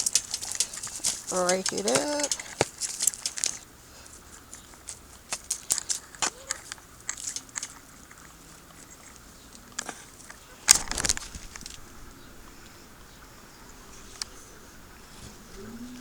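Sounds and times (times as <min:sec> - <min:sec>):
hands scraping potting soil: 0:00.0 - 0:03.6.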